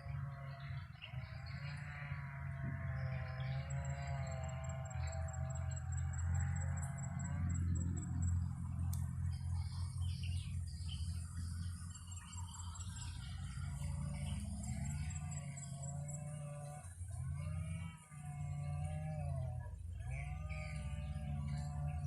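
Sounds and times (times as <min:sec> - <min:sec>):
wind rumbling on microphone: 0:00.0 - 0:16.2
small birds chirping: 0:03.0 - 0:17.6.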